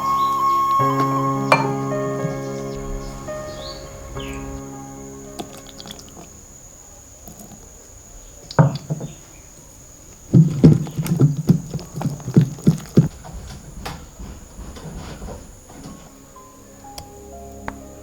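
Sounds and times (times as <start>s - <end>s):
dull knocks: 8.5s - 9.3s, 10.2s - 16.1s.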